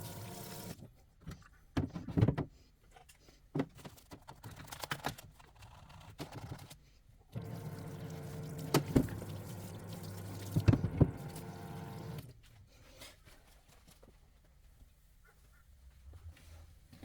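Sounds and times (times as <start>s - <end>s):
pump running: 0.0s - 0.8s, 7.4s - 12.2s
fluid pouring: 7.4s - 12.2s.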